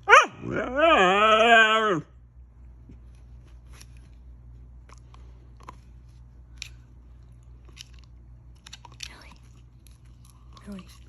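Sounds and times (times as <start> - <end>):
dog chewing: 3.6 - 11.0.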